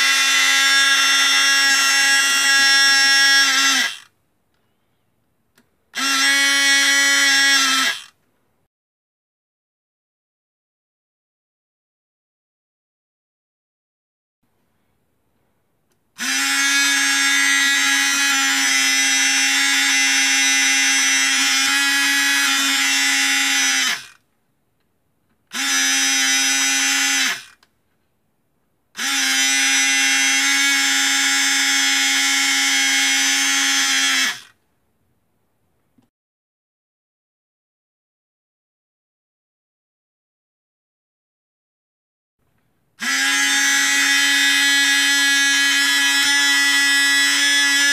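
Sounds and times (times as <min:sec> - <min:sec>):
small electric motor whirring: 0:00.0 - 0:04.1, 0:06.0 - 0:08.2, 0:16.2 - 0:24.2, 0:25.5 - 0:27.6, 0:29.0 - 0:34.6, 0:43.0 - 0:47.9.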